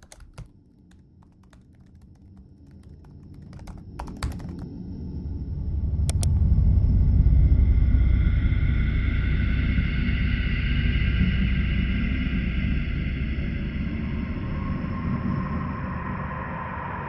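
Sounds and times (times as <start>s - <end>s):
sharp clicks: 0.0s - 4.6s, 6.1s - 6.4s
low rumbling drone: 4.7s - 17.0s
light clicks: 6.1s - 6.4s.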